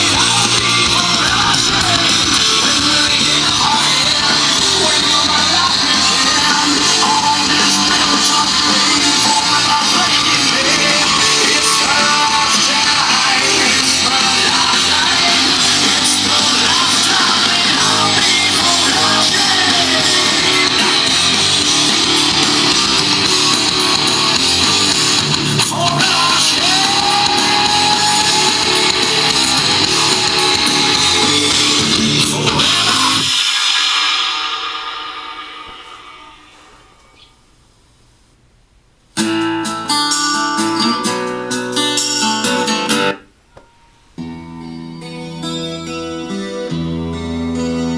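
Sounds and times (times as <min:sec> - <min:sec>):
rock song with guitar and singing: 0:00.0 - 0:36.7.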